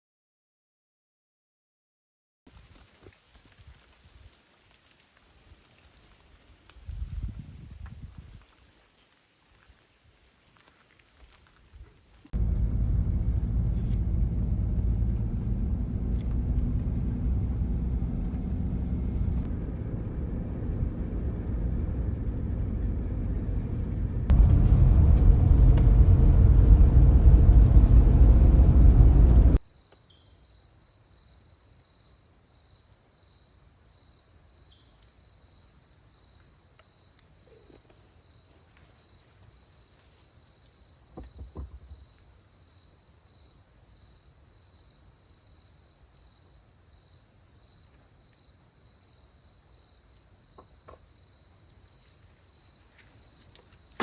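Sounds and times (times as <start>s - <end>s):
loud low rumbling: 12.4s - 29.6s.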